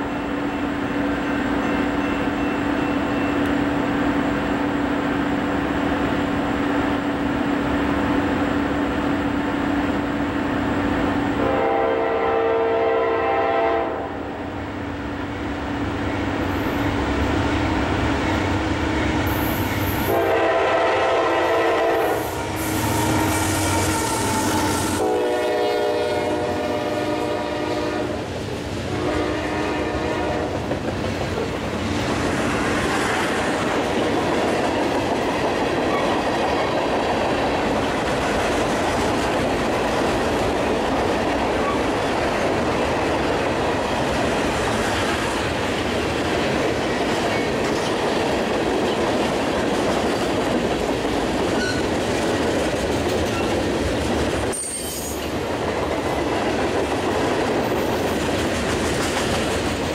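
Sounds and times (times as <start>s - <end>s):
locomotive horn blasts: 11.4s - 14.2s, 19.0s - 28.2s, 28.9s - 30.6s
train wheels clattering on rails: 16.1s - 59.9s.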